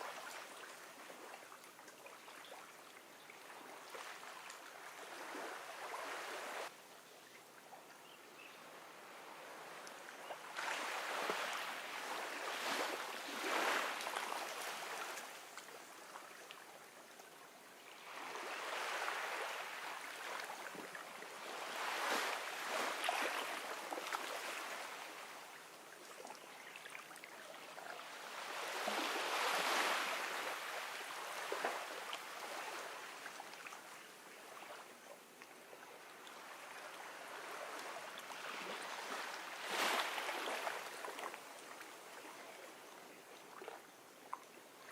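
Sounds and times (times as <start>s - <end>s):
ocean waves washing onto beach: 8.8s - 15.6s, 18.0s - 25.4s, 28.0s - 33.6s.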